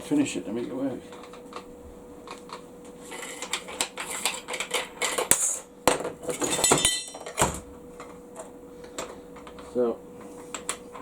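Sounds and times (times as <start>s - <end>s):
steel tools clinking: 6.4s - 7.4s.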